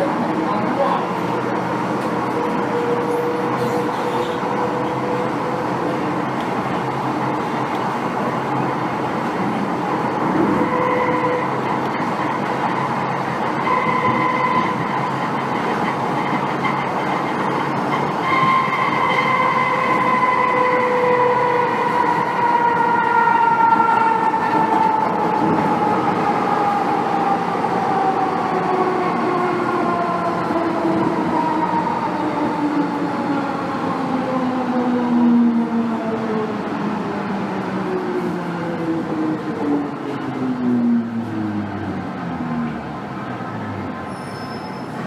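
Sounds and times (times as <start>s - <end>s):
train traction howl: 0.0s - 45.0s
wheels rumbling on track: 0.0s - 45.0s.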